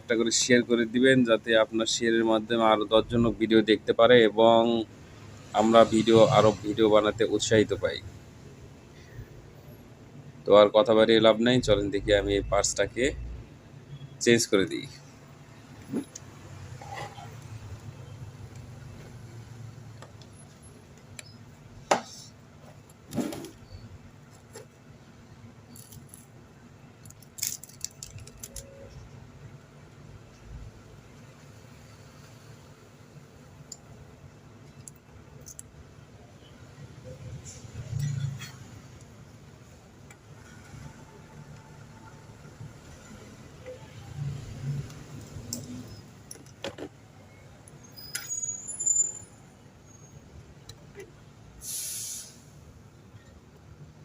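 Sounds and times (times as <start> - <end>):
metal parts clicking and rattling: 25.7 - 26.3, 27.0 - 28.7, 34.7 - 35.7
short hiss: 51.6 - 52.7.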